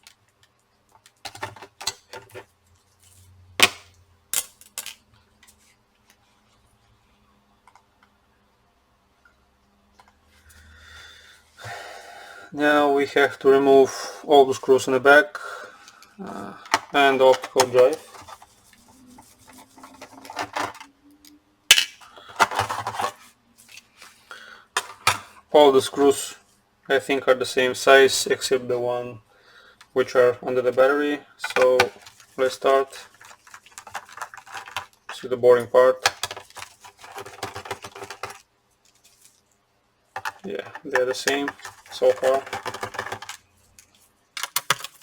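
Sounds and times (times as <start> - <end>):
clicks of laptop parts handled: 44.4 - 45.0.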